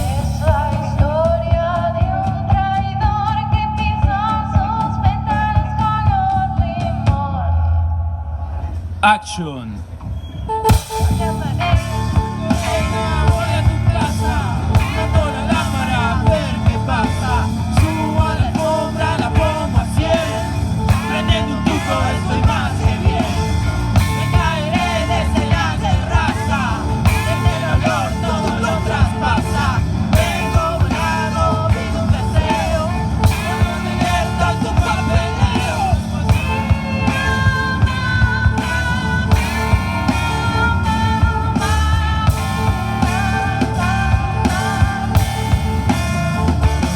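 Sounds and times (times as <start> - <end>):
drum kit beat: 0.0 - 5.0, 10.6 - 46.9
rock band playing live: 0.0 - 7.0, 10.6 - 46.9
electric guitar lead melody: 10.7 - 46.9.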